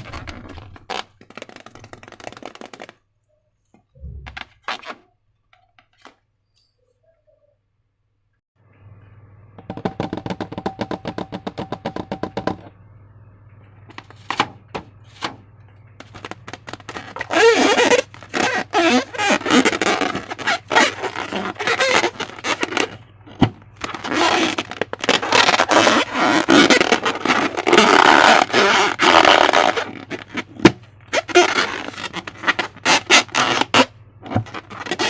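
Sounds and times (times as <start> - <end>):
low hum: 3.9 - 4.6, 8.6 - 11.0, 11.7 - 17.3.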